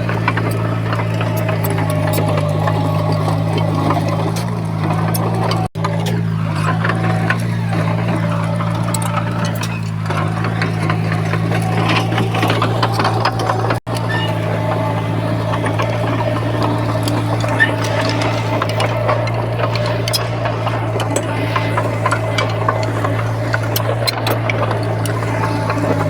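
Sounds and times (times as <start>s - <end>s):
heavy machinery diesel engine: 0.0s - 26.0s.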